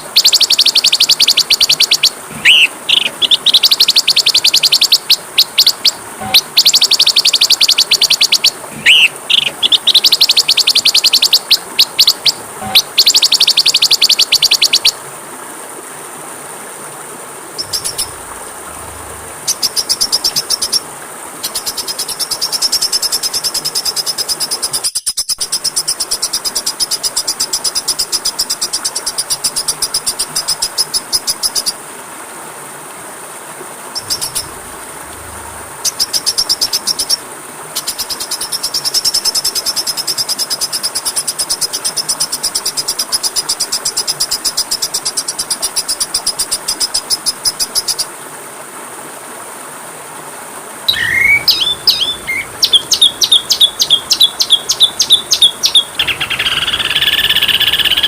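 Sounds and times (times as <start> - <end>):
songbird rattling trill: 0.0 - 14.9, 17.6 - 20.8, 34.0 - 37.2, 50.9 - 58.0
songbird whistled notes: 0.0 - 15.0, 50.9 - 58.0.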